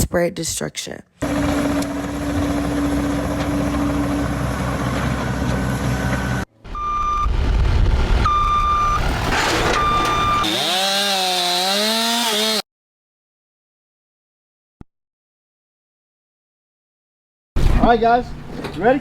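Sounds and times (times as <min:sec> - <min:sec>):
heavy vehicle engine rumbling: 0:01.2 - 0:10.5
reversing alarm beeping: 0:06.3 - 0:07.4, 0:08.2 - 0:10.8.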